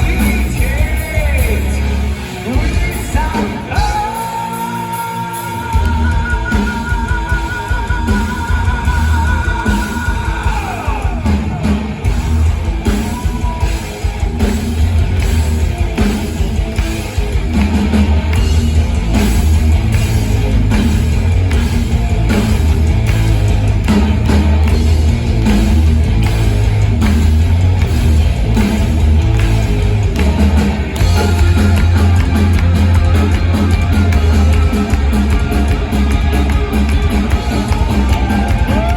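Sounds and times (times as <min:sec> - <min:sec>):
heavy metal band playing live: 0:00.0 - 0:38.9.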